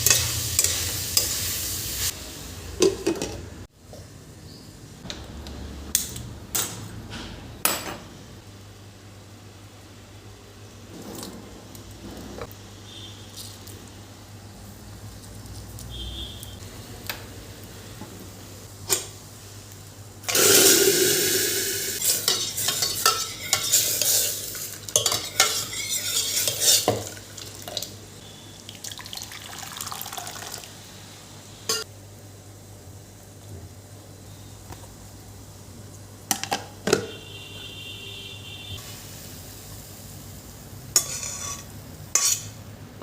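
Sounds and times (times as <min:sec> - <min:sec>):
food sizzling in hot pan: 0:00.0 - 0:02.8, 0:18.6 - 0:32.7, 0:38.8 - 0:42.6
utensils clinking: 0:20.3 - 0:27.8
spoon stirring against pan: 0:22.0 - 0:27.9, 0:41.0 - 0:42.6.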